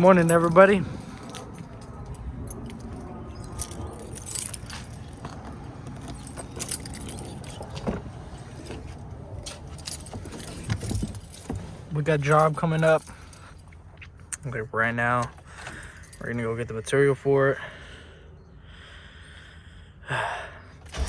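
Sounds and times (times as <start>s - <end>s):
keys jingling: 0.0s - 11.6s
vehicle engine humming: 0.0s - 14.3s.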